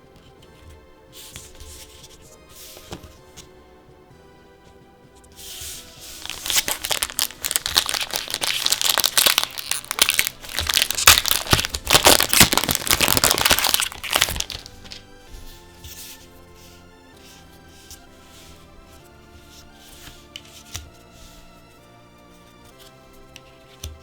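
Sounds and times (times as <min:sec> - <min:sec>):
soft background music: 0:00.0 - 0:24.0
plastic wrapper crinkling: 0:06.0 - 0:15.2.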